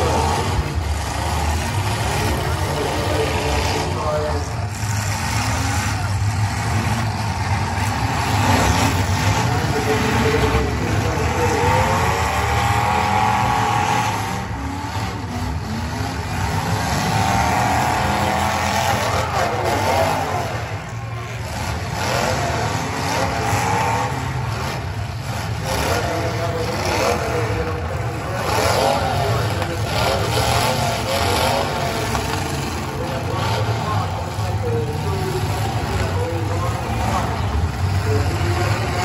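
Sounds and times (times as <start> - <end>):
car engines revving: 0.0 - 39.0.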